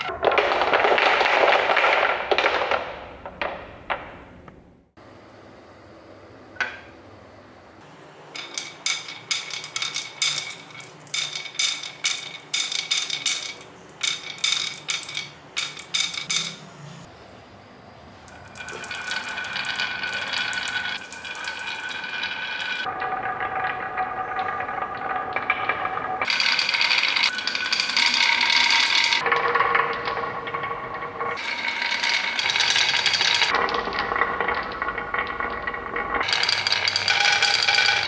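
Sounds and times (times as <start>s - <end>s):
small hard objects clattering: 0.1s - 2.9s, 8.4s - 16.6s, 18.3s - 22.9s, 31.4s - 34.0s, 36.2s - 38.0s.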